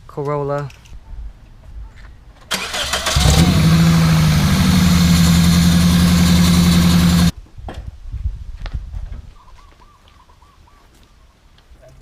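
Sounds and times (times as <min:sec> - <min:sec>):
car engine idling: 0:02.5 - 0:07.3
car starter cranking: 0:02.5 - 0:07.3.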